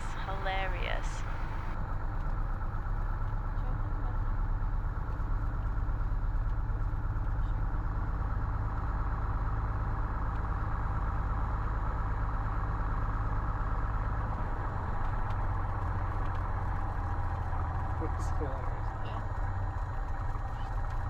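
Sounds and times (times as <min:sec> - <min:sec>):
aircraft engine running: 0:00.0 - 0:01.8.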